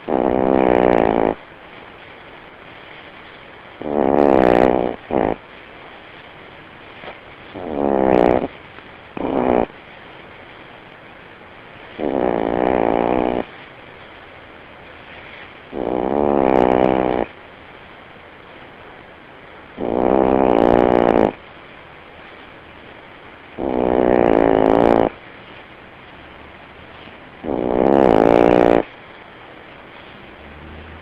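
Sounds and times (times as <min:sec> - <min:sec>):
dog snoring loudly: 0:00.0 - 0:01.4, 0:03.8 - 0:05.4, 0:07.5 - 0:08.5, 0:09.2 - 0:09.8, 0:11.9 - 0:13.5, 0:15.7 - 0:17.4, 0:19.8 - 0:21.4, 0:23.6 - 0:25.2, 0:27.4 - 0:28.9.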